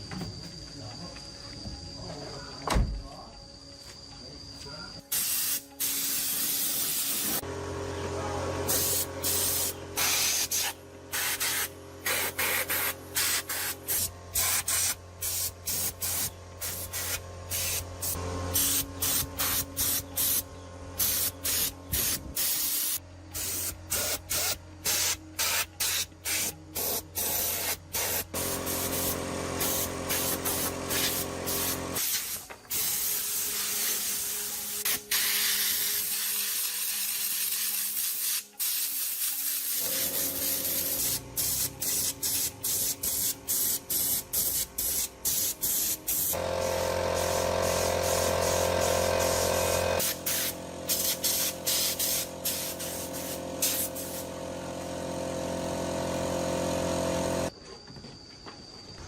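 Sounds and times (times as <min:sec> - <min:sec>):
spray gun hissing: 0:05.1 - 0:07.4, 0:08.6 - 0:20.4, 0:21.0 - 0:57.5
motor humming: 0:07.2 - 0:24.8, 0:28.3 - 0:32.0, 0:39.8 - 0:57.5.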